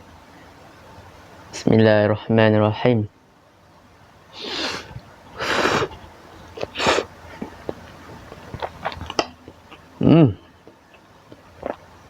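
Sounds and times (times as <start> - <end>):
person slurping noodles: 4.4 - 6.0
wet chewing clicks: 7.4 - 9.9, 10.6 - 12.0.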